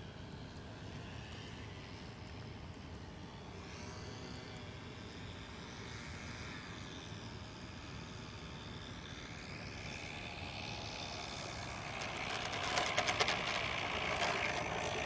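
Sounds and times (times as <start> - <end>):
model plane engine running: 0.0 - 15.0.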